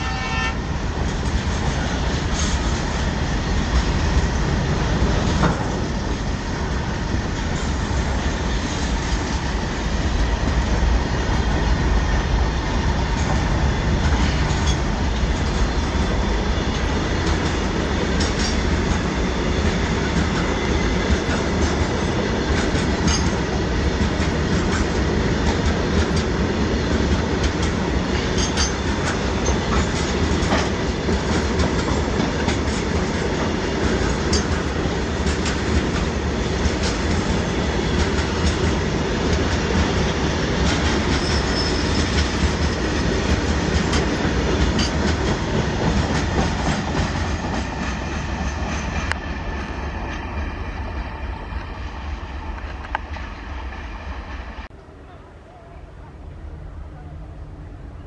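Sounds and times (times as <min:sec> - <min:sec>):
wagon wheels rumbling on rail: 0:00.0 - 0:54.8
wheels clacking over rail joints: 0:13.1 - 0:50.4
faint high wheel squeal: 0:41.2 - 0:42.1.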